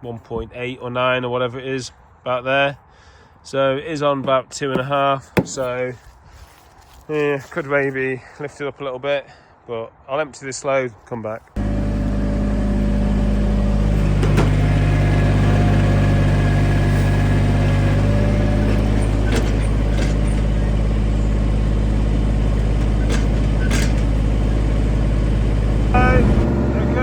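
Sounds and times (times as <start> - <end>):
mower engine running: 11.6 - 27.0.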